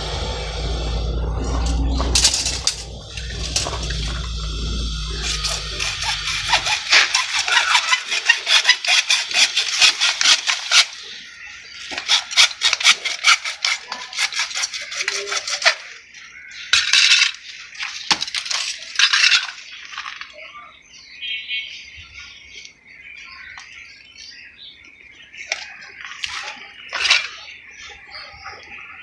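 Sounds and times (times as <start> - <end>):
hand tool scraping: 0.0 - 10.9.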